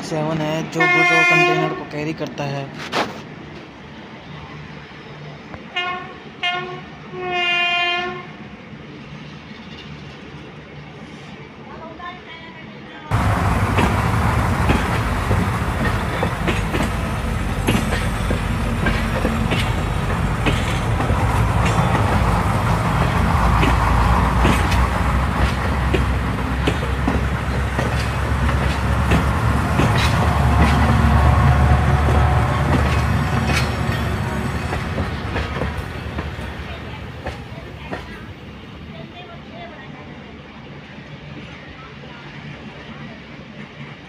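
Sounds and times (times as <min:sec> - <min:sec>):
wheels clicking over rail joints: 0:13.1 - 0:31.2
steel wheels rumbling on rail: 0:13.1 - 0:39.6.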